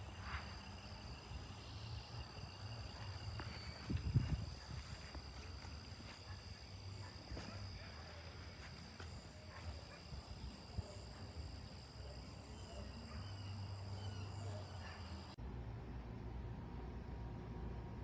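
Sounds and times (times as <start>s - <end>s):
low steady hum: 15.3s - 18.0s.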